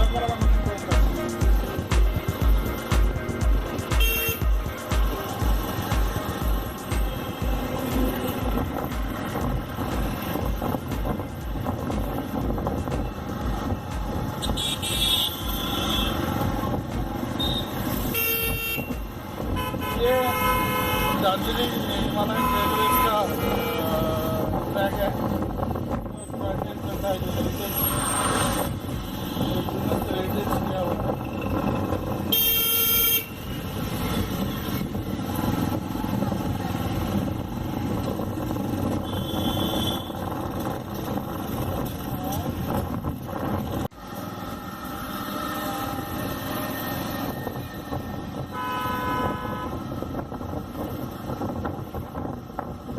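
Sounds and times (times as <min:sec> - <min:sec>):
vehicle horn toot: 0:03.9 - 0:04.5, 0:14.4 - 0:16.3, 0:17.4 - 0:24.0, 0:32.3 - 0:33.6, 0:38.9 - 0:40.3, 0:48.4 - 0:49.9
wind noise: 0:07.6 - 0:15.1, 0:23.0 - 0:32.6, 0:33.3 - 0:43.9, 0:45.7 - 0:52.9.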